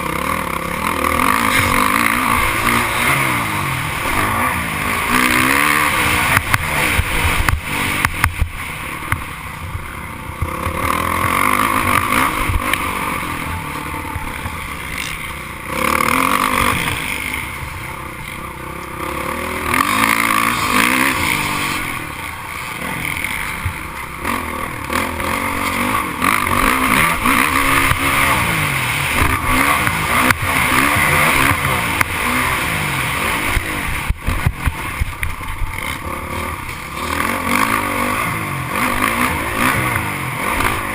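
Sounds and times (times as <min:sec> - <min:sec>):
motocross bike engines revving: 0:00.0 - 0:40.9.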